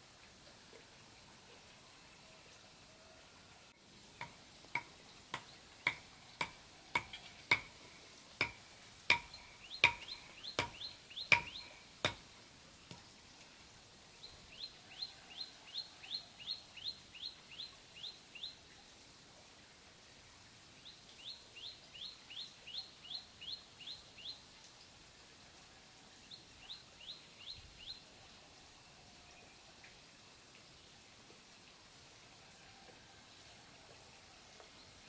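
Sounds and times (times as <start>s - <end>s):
sharp knocks: 4.2s - 7.8s, 8.4s - 12.2s.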